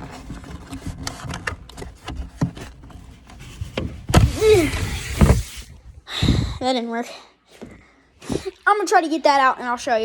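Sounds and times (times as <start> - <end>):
handling knocks and rubbing: 0.0 - 5.9.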